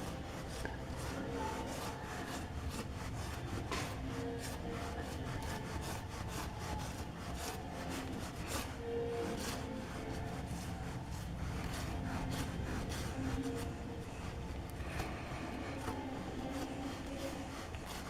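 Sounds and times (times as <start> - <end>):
hand sanding stone: 0.0 - 18.0.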